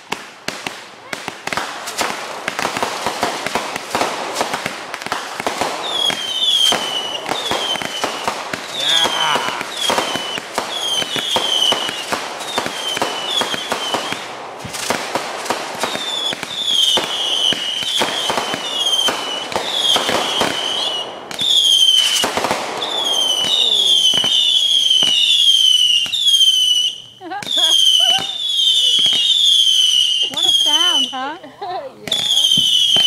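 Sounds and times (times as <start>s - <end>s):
fireworks cracks and bangs: 0.0s - 33.0s
firework whistles sliding down: 5.8s - 14.9s, 15.8s - 31.2s, 32.1s - 33.0s.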